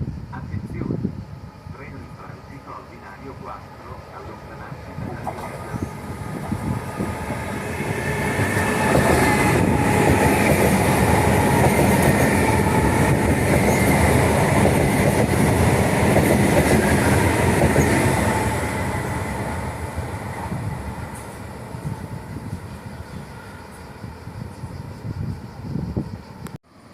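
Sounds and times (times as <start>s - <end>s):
steady train whine: 0.0s - 26.9s
train rumbling on rails: 0.0s - 26.9s.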